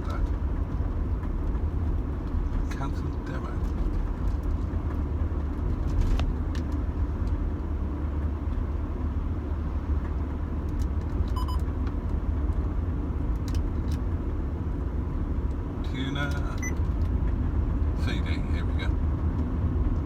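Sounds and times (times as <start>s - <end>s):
car engine and road drone: 0.0s - 20.0s
short electronic beep: 11.4s - 11.6s.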